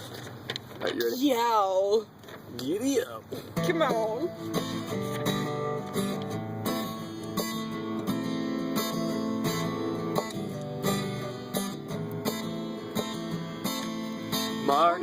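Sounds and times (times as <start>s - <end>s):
acoustic guitar strumming chords: 3.0s - 15.0s.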